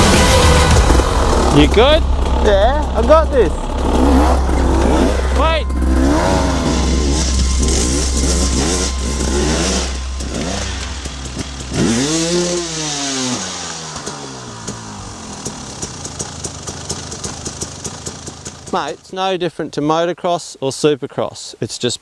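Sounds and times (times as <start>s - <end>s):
dirt bike engine revving: 0.0s - 18.9s.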